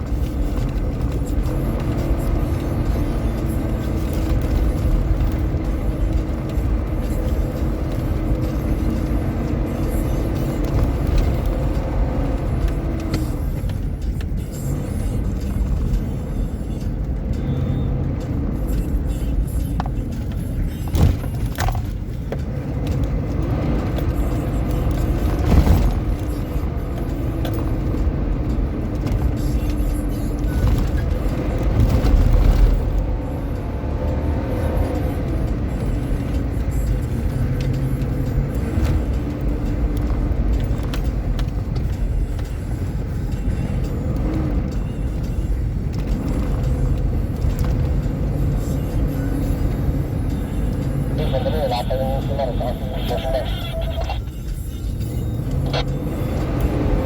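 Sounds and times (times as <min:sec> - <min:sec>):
off-road vehicle engine rumble: 0:00.0 - 0:57.0.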